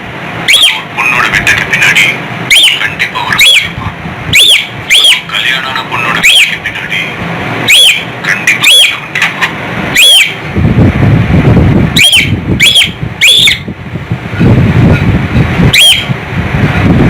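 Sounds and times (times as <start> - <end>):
low rumbling noise: 0.0 - 17.0
cockatiel calling: 0.5 - 0.8, 2.5 - 5.3, 6.0 - 6.6, 7.7 - 10.4, 12.0 - 13.7, 15.7 - 16.2.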